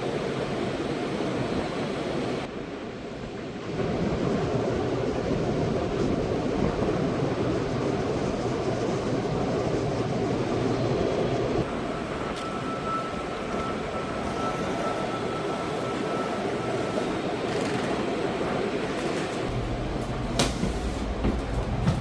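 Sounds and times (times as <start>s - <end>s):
train rumble and hiss: 0.0s - 22.0s.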